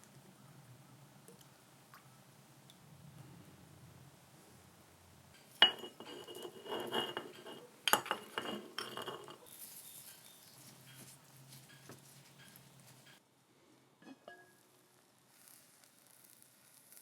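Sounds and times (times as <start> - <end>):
dishes clinking: 5.4 - 9.5, 10.1 - 13.2, 14.0 - 14.6
utensils clattering: 5.6 - 9.5.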